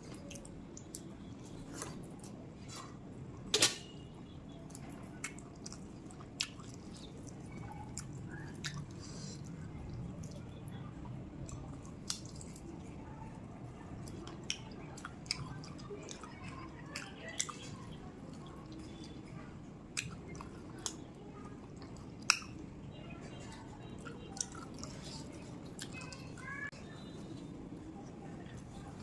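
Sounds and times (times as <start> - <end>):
person chewing food: 0.0 - 3.0, 4.7 - 10.6, 11.4 - 12.9, 14.0 - 19.3, 19.9 - 22.7, 24.0 - 26.3
low background hum: 0.0 - 29.0
lip and tongue clicks: 4.7 - 10.4, 21.7 - 22.6.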